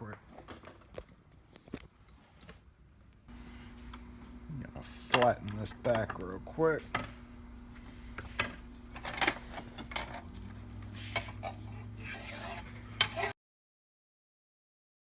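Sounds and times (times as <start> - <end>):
metal scraping on metal: 9.0 - 13.4.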